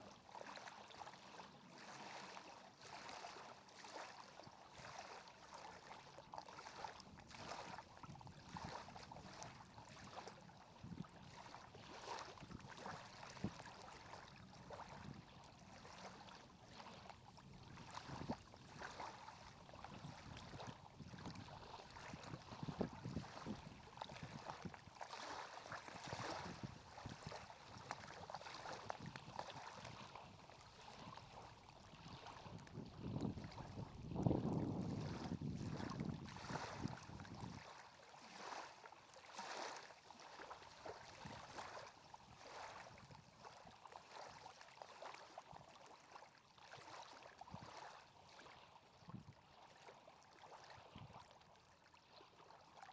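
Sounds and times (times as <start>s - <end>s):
water lapping: 0.0s - 52.9s
small splashes and ticks: 0.1s - 33.8s.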